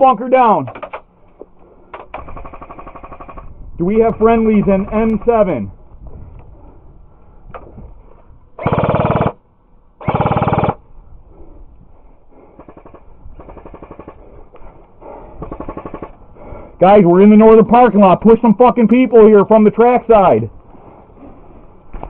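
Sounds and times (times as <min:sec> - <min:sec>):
airsoft guns firing bursts: 0:02.1 - 0:03.5, 0:08.6 - 0:09.4, 0:10.0 - 0:10.8, 0:12.5 - 0:14.2, 0:15.4 - 0:16.2.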